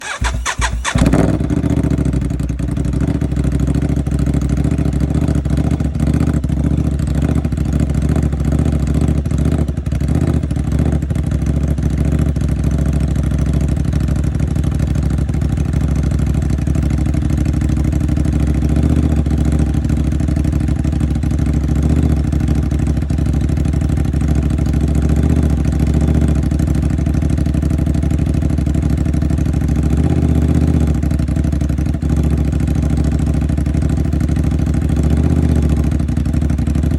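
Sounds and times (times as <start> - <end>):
starter cranking: 0.0 - 1.4
motorcycle engine idling: 0.0 - 36.9.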